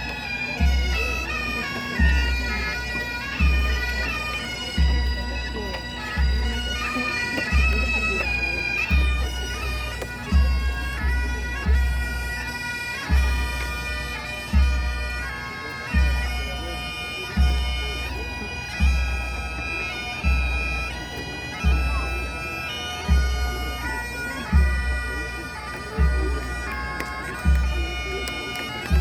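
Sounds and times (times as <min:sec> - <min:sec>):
low drum beat: 0:00.0 - 0:12.2, 0:25.9 - 0:29.0
bagpipes playing melody with drones: 0:00.0 - 0:29.0.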